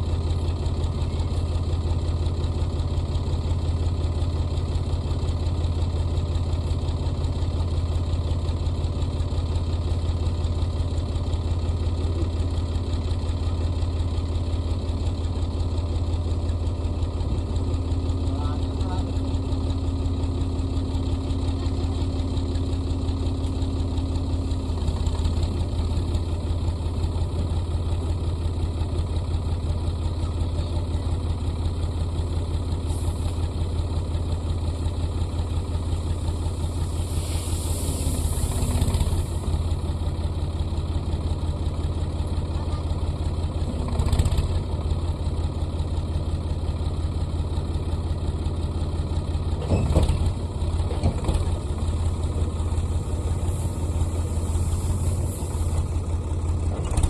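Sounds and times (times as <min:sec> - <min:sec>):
tractor diesel engine idling: 0:00.0 - 0:57.0
brief hissing: 0:36.8 - 0:39.2, 0:53.4 - 0:55.9.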